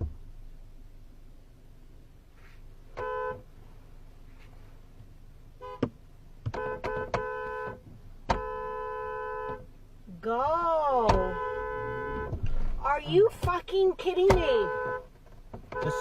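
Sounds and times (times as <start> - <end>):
horn honking: 2.9 - 3.5, 5.6 - 5.9, 6.5 - 9.8, 10.6 - 13.3, 14.0 - 16.0.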